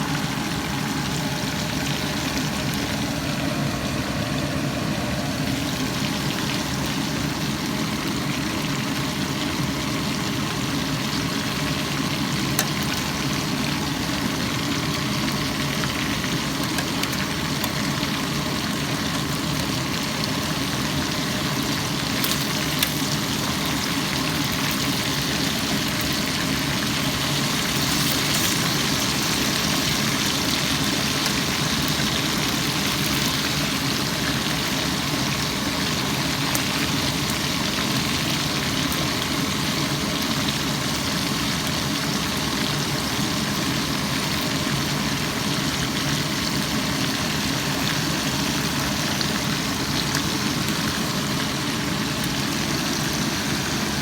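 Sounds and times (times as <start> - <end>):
engine idling hum: 0.0 - 8.5.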